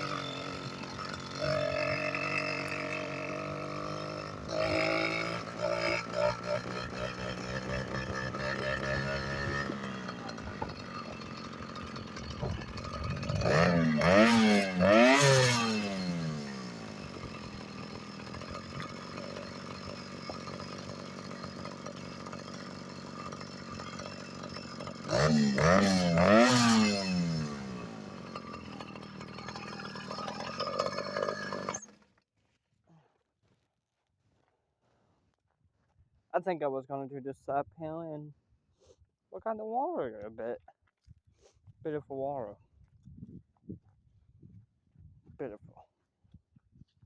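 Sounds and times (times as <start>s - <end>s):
small two-stroke engine revving: 0.0s - 32.1s.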